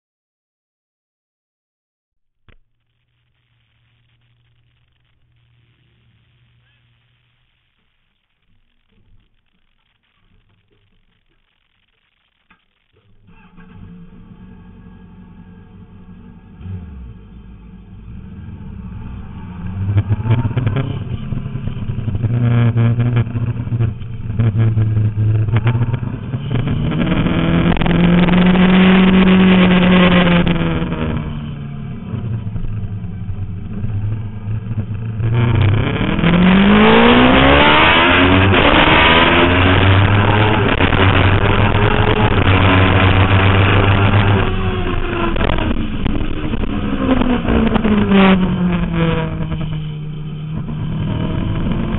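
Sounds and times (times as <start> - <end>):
motorcycle engine revving: 13.0 - 51.9.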